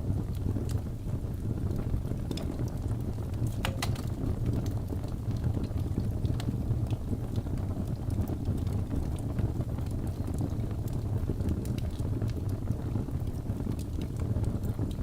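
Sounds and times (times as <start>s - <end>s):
fire rumbling: 0.0s - 15.0s
logs crackling and popping: 0.0s - 15.0s.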